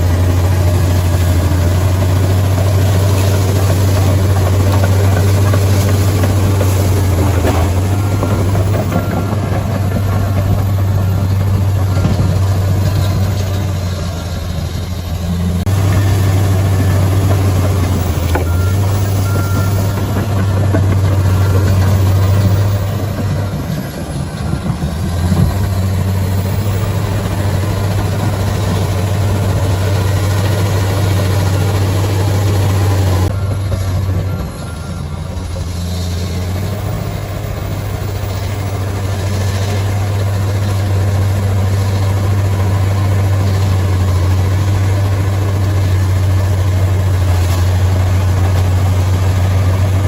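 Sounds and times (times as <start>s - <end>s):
bulldozer diesel engine drone: 0.0s - 50.0s.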